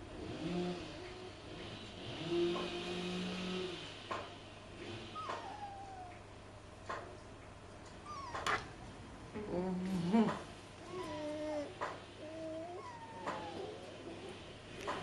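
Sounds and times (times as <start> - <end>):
puppies whining and squeaking: 5.2 - 6.3, 8.0 - 8.8, 10.0 - 15.0.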